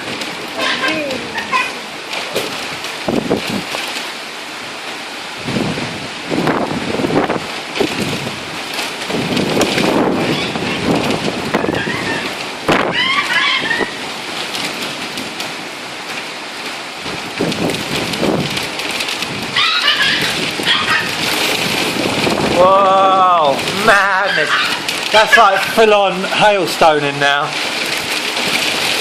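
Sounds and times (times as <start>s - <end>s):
heavy rain pouring: 0.0s - 29.0s
wind buffeting microphone: 0.0s - 29.0s.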